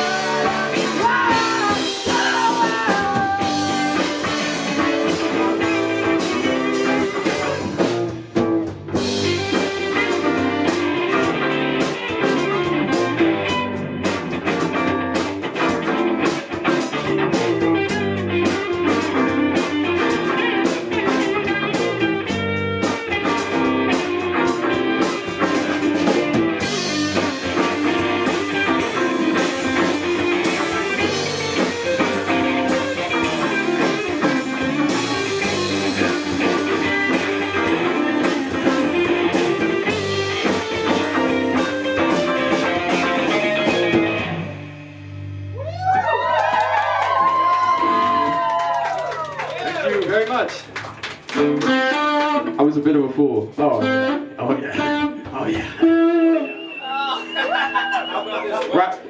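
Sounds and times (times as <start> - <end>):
live rock band playing: 0.0 - 58.7.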